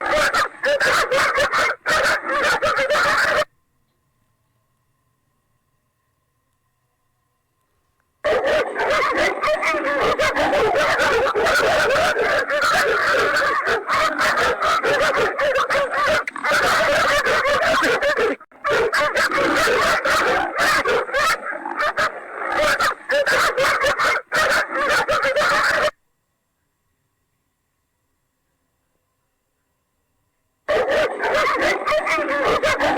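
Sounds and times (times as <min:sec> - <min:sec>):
dogs barking and yelping: 0:00.0 - 0:03.5, 0:08.2 - 0:26.0, 0:30.7 - 0:32.9.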